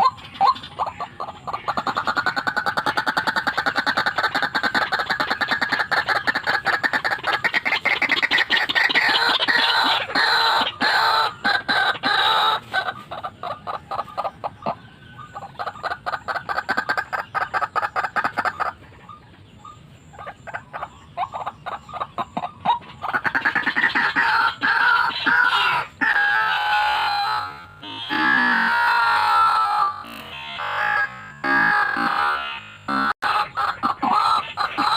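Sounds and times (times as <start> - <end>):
waterhen calling harsh notes: 23.0 - 34.9.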